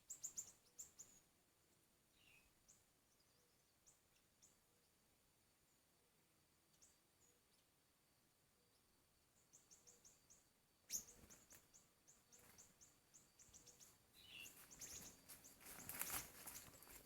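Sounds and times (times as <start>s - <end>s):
high thin bird chirps: 10.9s - 17.0s
rustling crackles: 14.5s - 17.0s.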